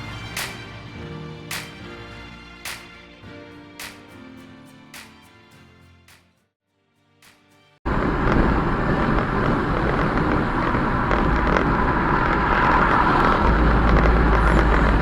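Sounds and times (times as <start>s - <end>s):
vehicle road and wind noise: 7.9s - 15.0s.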